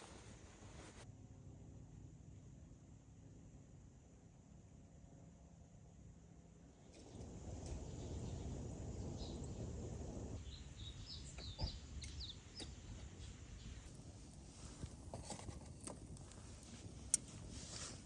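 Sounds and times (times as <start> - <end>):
low rumbling noise: 6.7 - 18.0
birds chirping: 10.4 - 13.9.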